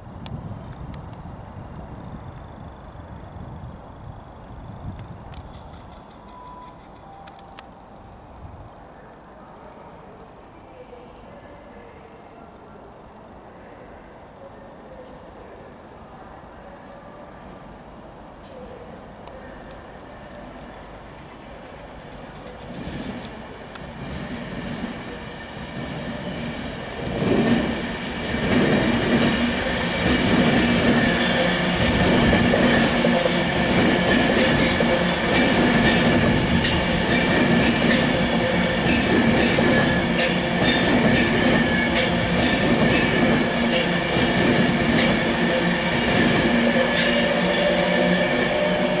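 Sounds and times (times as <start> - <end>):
electric train rumbling past: 0.0 - 11.0, 15.3 - 49.0
sharp wheel clicks on rail joints: 5.0 - 7.7.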